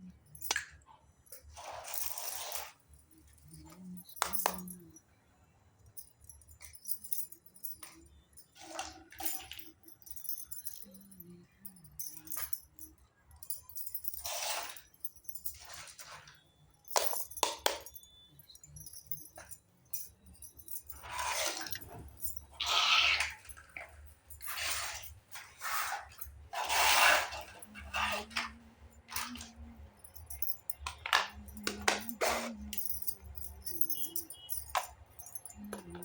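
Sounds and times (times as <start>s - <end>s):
small toy pieces clinking: 6.2s - 36.0s.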